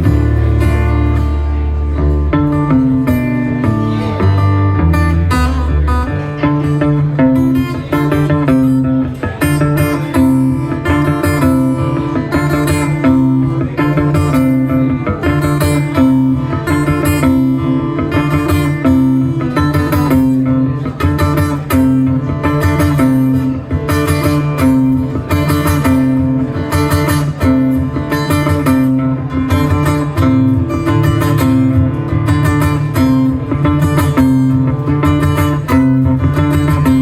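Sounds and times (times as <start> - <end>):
acoustic guitar playing: 0.0 - 37.0.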